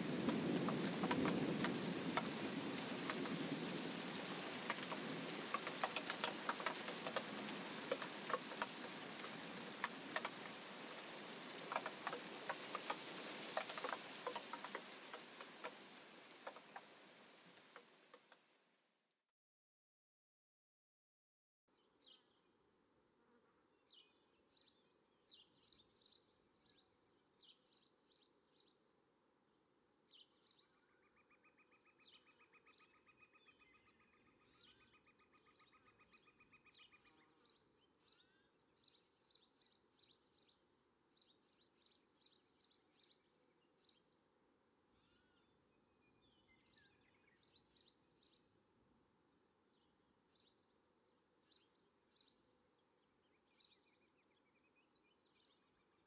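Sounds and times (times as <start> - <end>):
faint bird chirps: 30.2 - 48.6.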